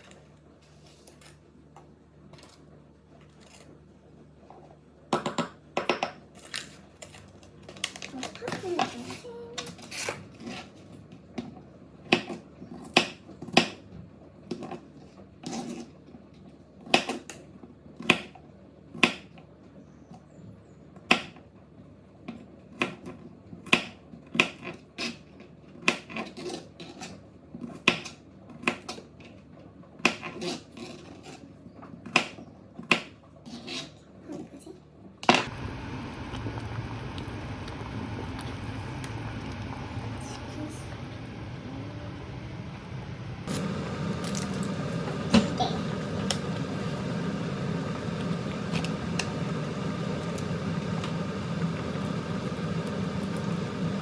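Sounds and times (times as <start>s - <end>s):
steady low rumbling: 35.5s - 54.0s.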